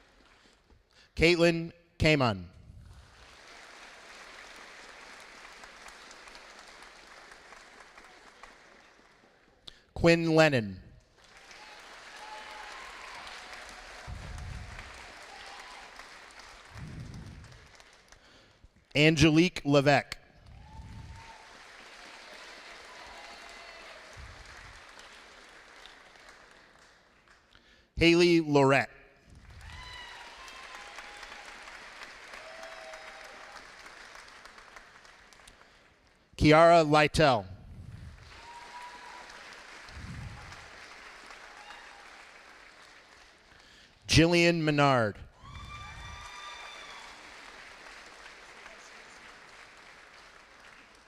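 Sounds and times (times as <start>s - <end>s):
audience applauding: 2.9s - 9.6s, 11.1s - 18.7s, 20.5s - 27.5s, 29.4s - 36.2s, 38.1s - 44.0s, 45.4s - 51.0s.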